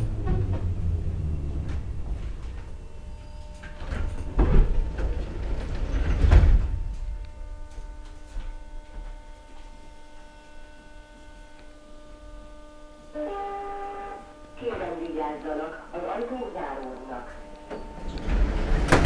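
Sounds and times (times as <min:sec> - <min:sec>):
low rumble: 0:00.0 - 0:03.4
electrical hum: 0:00.0 - 0:19.0
thin whining tones: 0:07.2 - 0:14.6
train doors thumping: 0:17.7 - 0:19.0.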